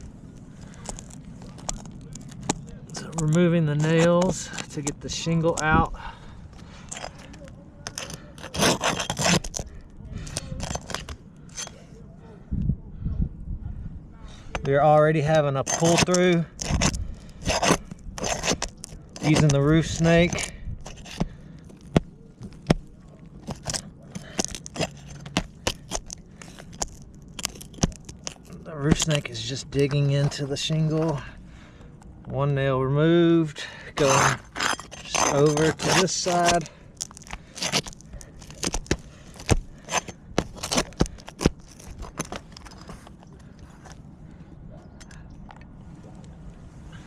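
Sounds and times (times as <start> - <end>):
metal tool scraping shingles: 0.6 - 5.9, 6.6 - 11.9, 14.5 - 31.3, 33.7 - 44.0
metal tool clicking on shingles: 6.9 - 11.8, 15.6 - 31.2, 34.0 - 43.2.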